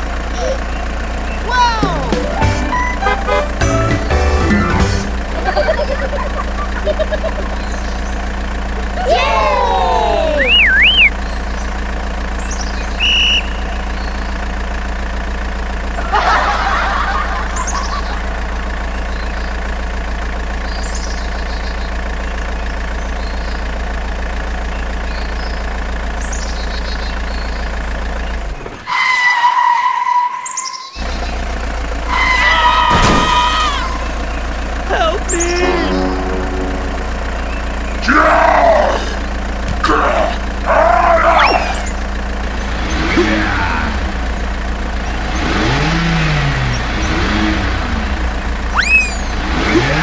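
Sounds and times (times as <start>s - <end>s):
machine hum: 1.4s - 8.9s, 34.2s - 40.9s
two-note electronic beep: 2.1s - 5.2s, 35.4s - 38.0s
whistling chirps: 10.4s - 11.2s, 12.7s - 14.2s, 48.7s - 49.4s.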